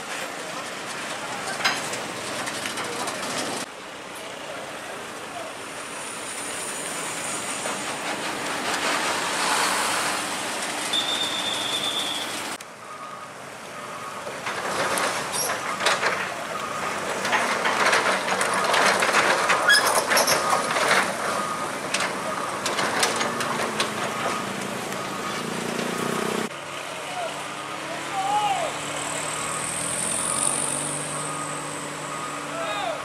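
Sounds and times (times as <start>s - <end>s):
heavy machinery grinding and clanking: 0.0s - 3.7s, 6.1s - 12.0s, 13.8s - 26.5s
intermittent beeping tone: 10.9s - 14.4s.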